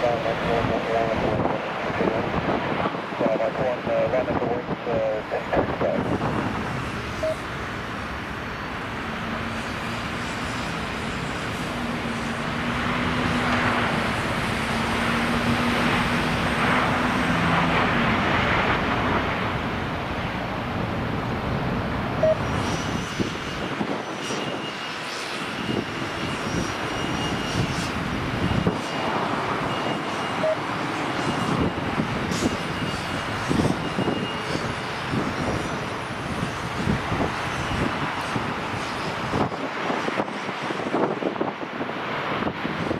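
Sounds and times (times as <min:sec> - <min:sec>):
airliner engines running: 0:00.0 - 0:42.9
thin high whine: 0:05.1 - 0:40.3.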